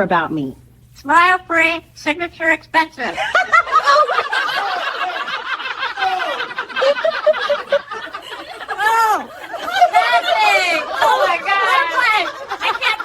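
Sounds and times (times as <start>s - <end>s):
people laughing: 3.1s - 13.0s.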